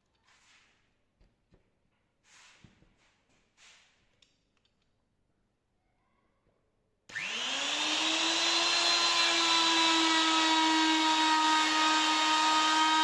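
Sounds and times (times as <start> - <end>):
wood router motor whine: 7.1 - 13.0.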